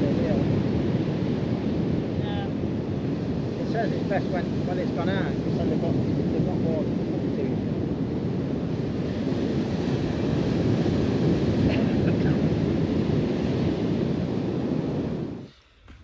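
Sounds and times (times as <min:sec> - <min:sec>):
sea surf rushing: 0:00.0 - 0:16.0
wind buffeting microphone: 0:00.0 - 0:16.0.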